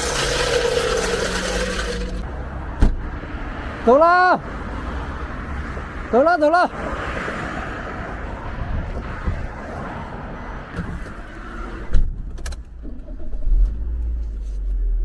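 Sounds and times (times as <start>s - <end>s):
outdoor noise: 0.0s - 15.0s
car engine rumble: 7.9s - 15.0s.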